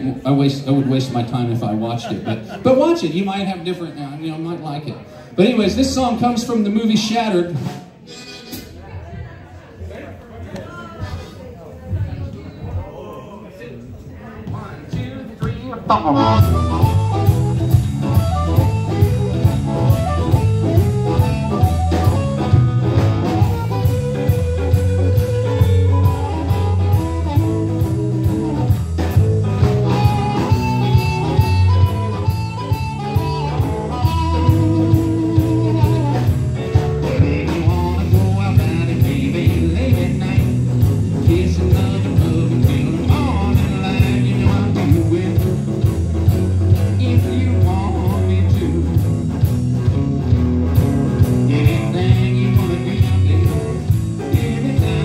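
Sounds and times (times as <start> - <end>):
live blues band playing: 4.9 - 9.1, 15.7 - 55.0
harmonica: 15.9 - 28.8, 29.6 - 36.8.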